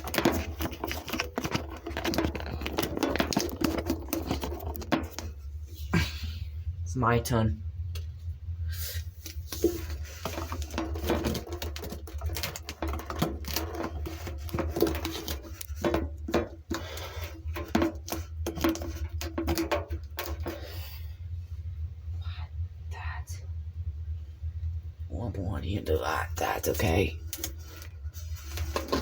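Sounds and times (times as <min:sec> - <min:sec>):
trimmer rattling in washing machine drum: 0:00.0 - 0:05.4, 0:10.2 - 0:20.6
washing machine low hum: 0:00.0 - 0:29.0.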